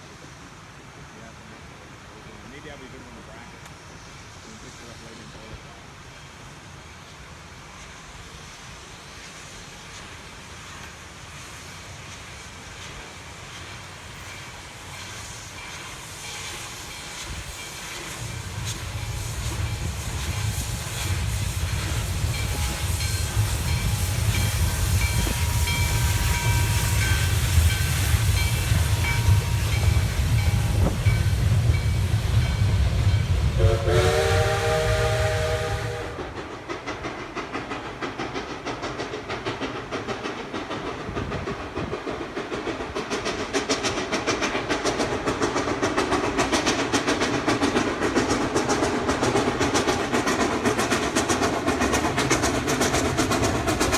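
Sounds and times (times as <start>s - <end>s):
steam hiss: 0.0s - 53.9s
steam locomotive rumble: 0.0s - 53.9s
steam whistle blast: 22.4s - 30.8s, 33.6s - 36.3s
wheels clicking over rail joints: 36.2s - 53.9s.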